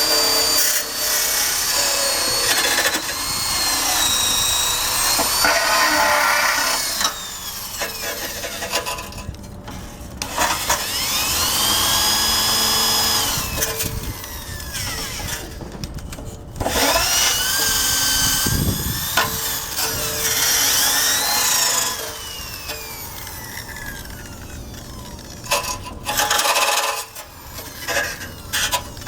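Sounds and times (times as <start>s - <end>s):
scraping on metal: 0.0s - 10.9s
power drill with wire brush: 0.0s - 15.6s, 16.6s - 29.0s.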